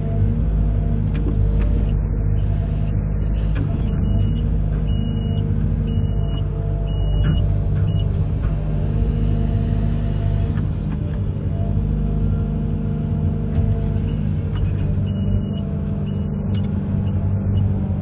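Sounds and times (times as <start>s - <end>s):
diesel engine rumbling: 0.0s - 18.0s
faint high beep: 15.1s - 17.7s.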